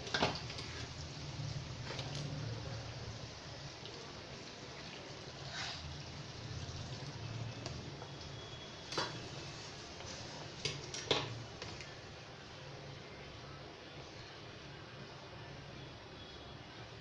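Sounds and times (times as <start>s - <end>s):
curry sizzling in a pan: 0.0s - 11.9s.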